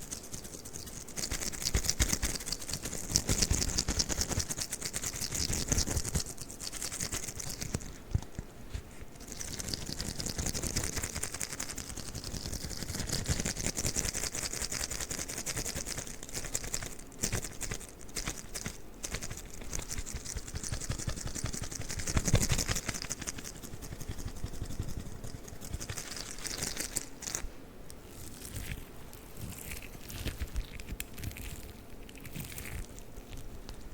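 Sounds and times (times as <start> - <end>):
sticky rubber toy crackling: 0.0 - 8.3, 9.2 - 27.5, 28.2 - 33.9.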